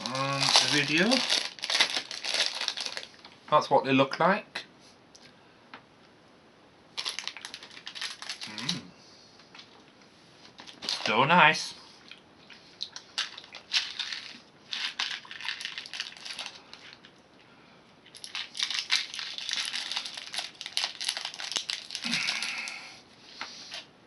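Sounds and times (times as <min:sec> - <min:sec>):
plastic packaging crinkling: 0:00.0 - 0:03.4, 0:07.0 - 0:08.8, 0:10.5 - 0:11.2, 0:12.8 - 0:17.2, 0:18.0 - 0:22.8.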